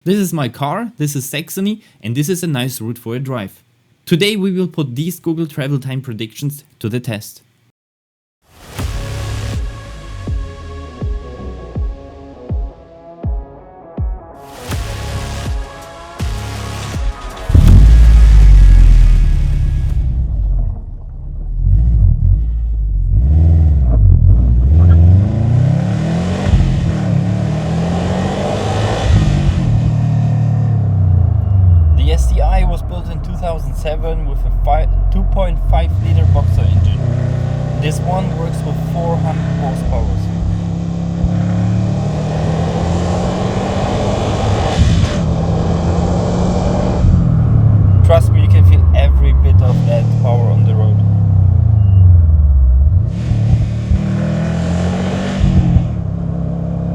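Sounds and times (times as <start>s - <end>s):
car engine accelerating: 16.3s - 56.9s.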